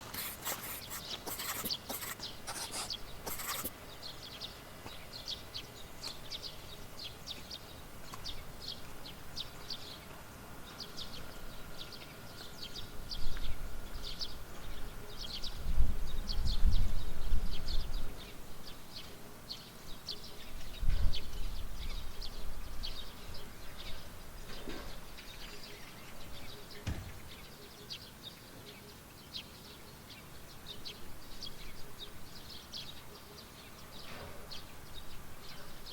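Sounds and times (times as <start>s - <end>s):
birds chirping: 0.0s - 35.9s
wind rumble on microphone: 15.4s - 18.2s, 20.6s - 23.4s.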